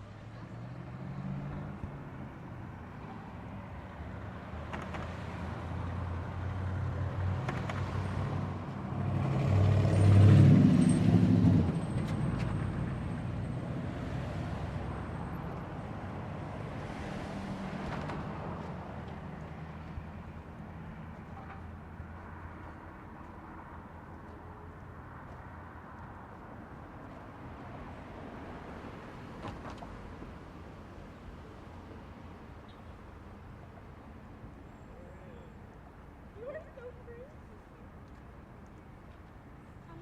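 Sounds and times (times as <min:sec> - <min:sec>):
street traffic engines: 0:00.0 - 0:40.0
vehicle passing close: 0:04.6 - 0:19.7.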